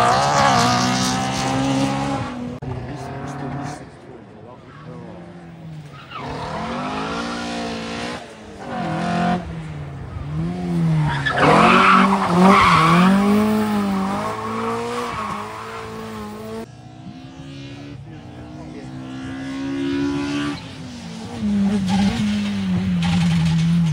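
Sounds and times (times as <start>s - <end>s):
rally car engine revving: 0.0s - 23.9s
tyres squealing and skidding: 4.4s - 7.9s, 10.2s - 16.6s.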